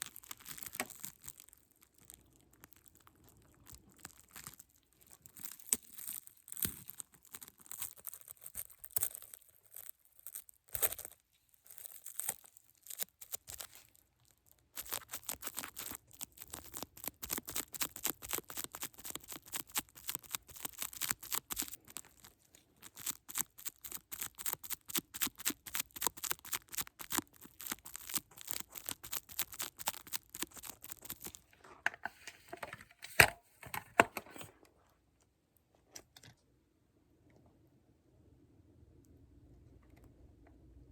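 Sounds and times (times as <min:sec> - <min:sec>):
material crinkling and crackling: 0:00.0 - 0:34.8.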